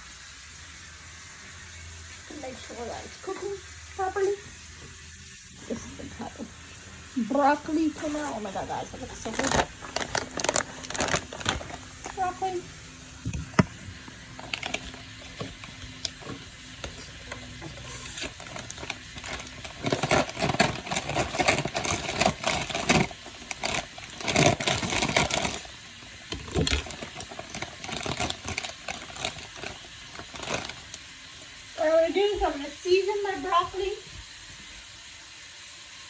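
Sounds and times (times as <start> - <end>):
utensils and dishes clattering: 14.3 - 30.9.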